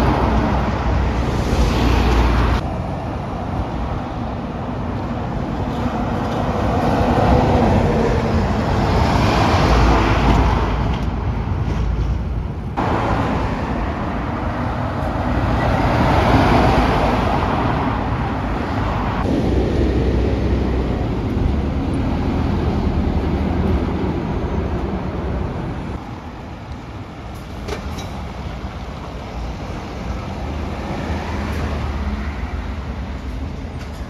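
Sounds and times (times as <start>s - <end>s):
heavy trucks driving by: 0.0s - 34.0s.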